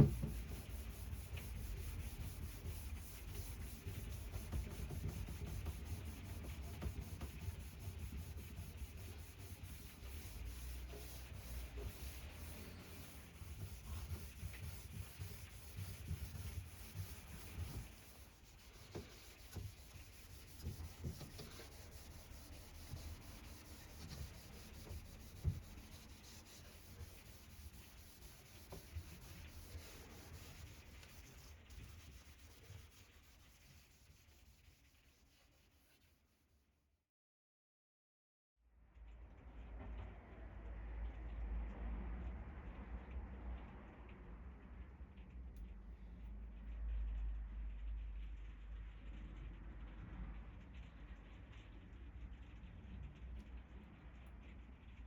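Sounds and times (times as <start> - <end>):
hand rubbing on wood: 0.0 - 36.0.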